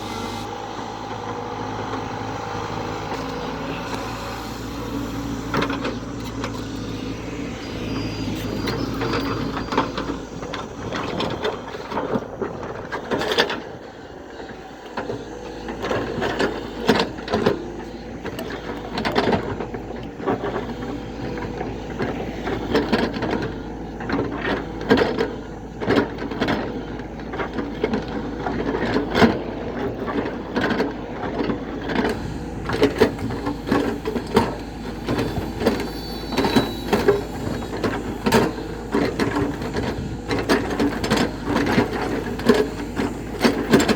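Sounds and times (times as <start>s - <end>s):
backhoe machinery rattling: 0.0s - 43.9s.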